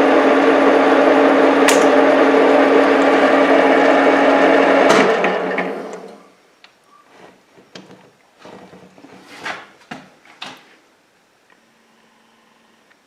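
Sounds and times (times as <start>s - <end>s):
sharp click: 1.7s - 2.0s.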